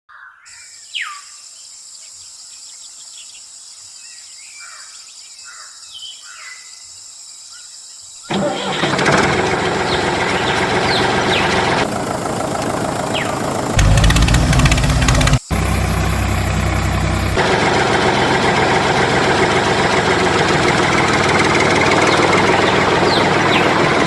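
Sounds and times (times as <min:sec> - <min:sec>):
small engine running loudly: 0:08.3 - 0:24.0
birds chirping: 0:09.5 - 0:24.0.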